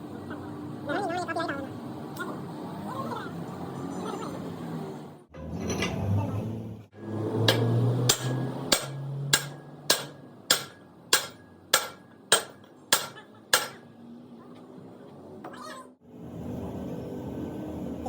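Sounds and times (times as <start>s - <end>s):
hammer striking metal: 5.4s - 6.2s, 7.3s - 13.9s.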